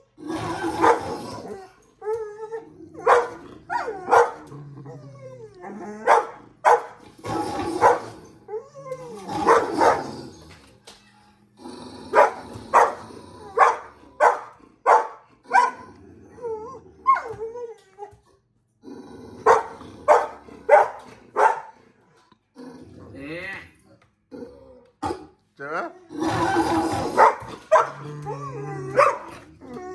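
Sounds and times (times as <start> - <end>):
dog growling: 0.0 - 10.8, 11.5 - 14.8, 15.4 - 17.4, 18.8 - 29.9
dog whining: 0.4 - 6.3, 7.2 - 10.6, 16.2 - 18.3, 26.3 - 29.9
dog barking: 0.8 - 1.1, 3.0 - 4.4, 6.0 - 7.0, 7.8 - 8.1, 9.4 - 10.1, 12.2 - 13.0, 13.6 - 15.8, 19.4 - 21.7, 27.2 - 28.0, 28.9 - 29.4.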